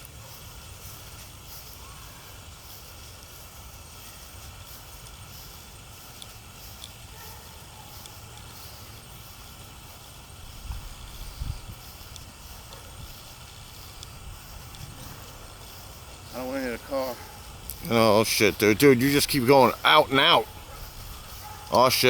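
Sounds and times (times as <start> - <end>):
wind buffeting microphone: 9.1 - 19.2, 20.0 - 22.0
low bumps: 10.4 - 21.8.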